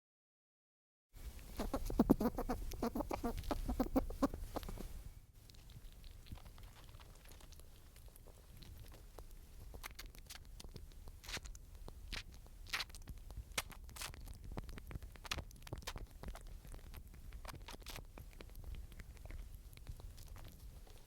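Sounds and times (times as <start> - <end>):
animal crunching and gnawing food: 1.3 - 21.0.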